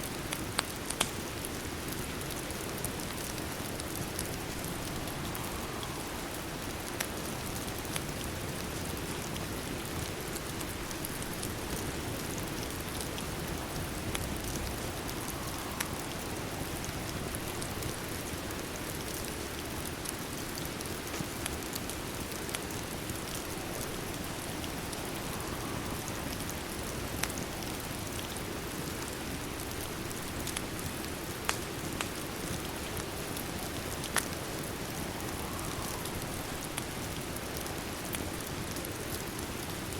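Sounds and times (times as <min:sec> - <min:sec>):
fireplace crackles: 0:00.0 - 0:39.9
steady rain: 0:00.0 - 0:39.9.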